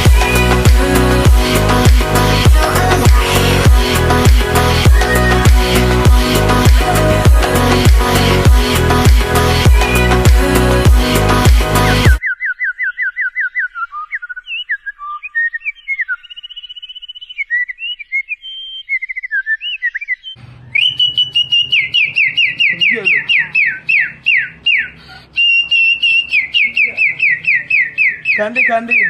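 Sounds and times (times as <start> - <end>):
high clear whistling: 4.6 - 5.8, 20.6 - 29.0.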